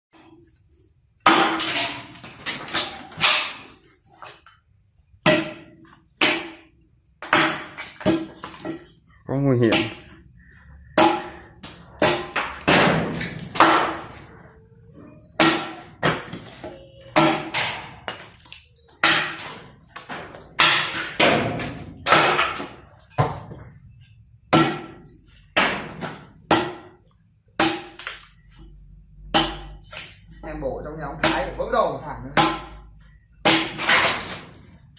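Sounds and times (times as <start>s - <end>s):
splitting maul striking wood: 1.2s - 3.6s, 5.2s - 8.8s, 11.0s - 11.4s, 12.0s - 14.0s, 15.4s - 16.4s, 17.2s - 18.3s, 19.0s - 23.4s, 24.5s - 25.0s, 25.6s - 27.0s, 27.6s - 28.2s, 29.3s - 30.1s, 32.4s - 32.8s, 33.4s - 34.5s.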